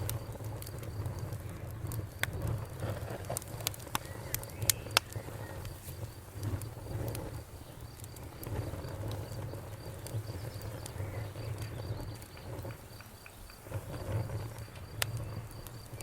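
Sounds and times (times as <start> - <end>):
campfire crackling and popping: 0.0 - 16.0
cricket chirping: 0.0 - 16.0.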